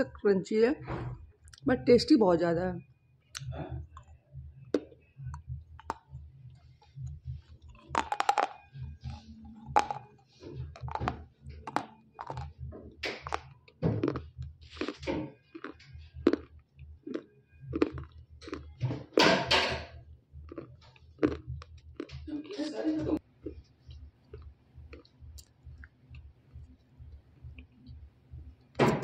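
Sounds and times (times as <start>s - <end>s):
crunchy chewing: 3.4s - 19.6s, 20.4s - 22.6s, 23.4s - 26.8s.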